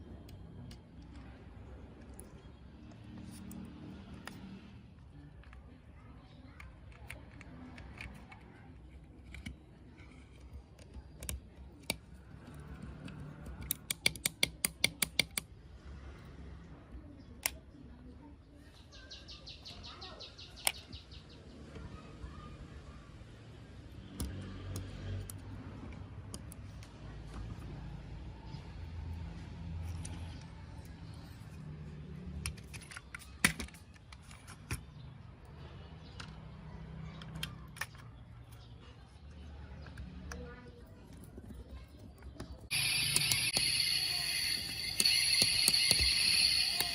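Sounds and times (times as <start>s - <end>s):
small sharp clicks and taps: 10.8s - 15.5s
sharp clicks: 13.5s - 15.5s, 42.7s - 46.9s
steady low hum: 42.7s - 46.9s.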